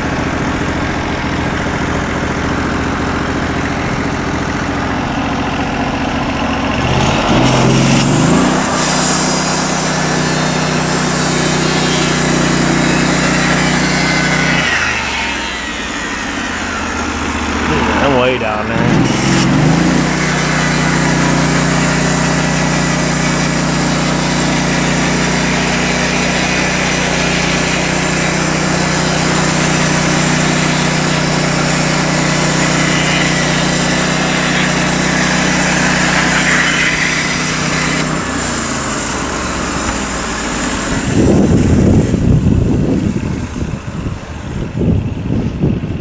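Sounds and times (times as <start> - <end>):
band saw blade cutting log: 0.0 - 44.1
gasoline engine running: 0.0 - 46.0
wind buffeting microphone: 41.0 - 46.0.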